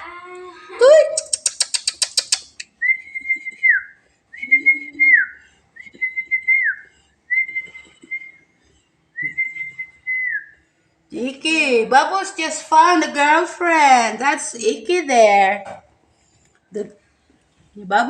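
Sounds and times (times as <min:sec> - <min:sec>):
sharp clicks: 0:01.2 - 0:02.7
whistling long notes: 0:09.2 - 0:10.6.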